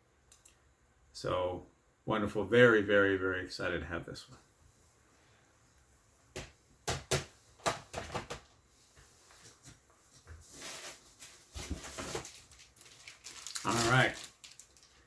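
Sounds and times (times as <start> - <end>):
soft rustle: 8.6 - 15.0.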